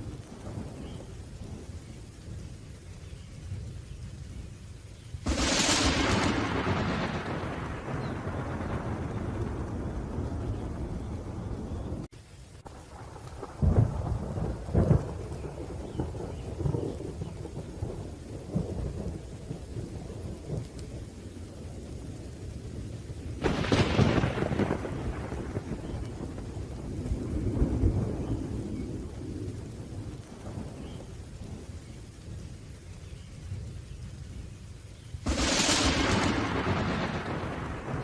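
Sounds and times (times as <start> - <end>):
steady rain: 0.0 - 38.0
sharp loud thunderclap: 5.2 - 12.1, 12.9 - 20.7, 23.4 - 31.6, 35.2 - 38.0
rolling thunder: 5.2 - 34.6, 35.2 - 38.0.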